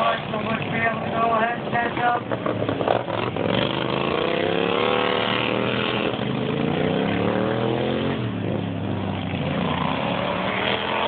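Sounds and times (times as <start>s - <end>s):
lawnmower engines racing: 0.0s - 11.0s.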